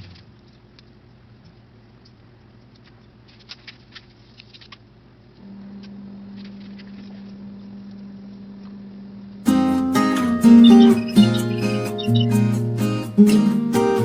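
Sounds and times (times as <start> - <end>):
background music low note: 7.4 - 14.0.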